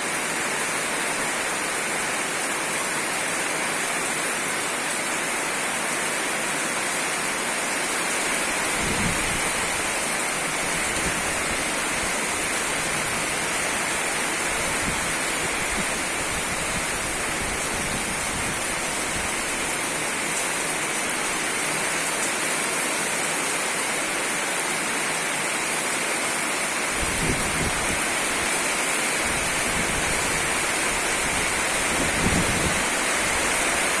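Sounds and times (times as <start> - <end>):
heavy rain falling: 0.0 - 34.0
wind gusting against microphone: 7.8 - 21.9, 26.9 - 34.0.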